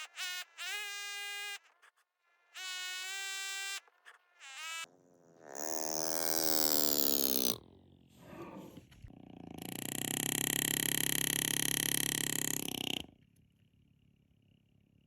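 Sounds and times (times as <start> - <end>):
laser engraver whine: 9.6 - 13.1.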